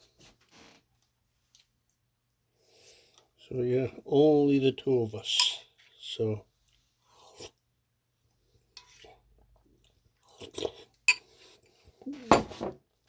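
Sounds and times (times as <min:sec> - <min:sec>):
pans and utensils clinking: 0:12.2 - 0:12.8.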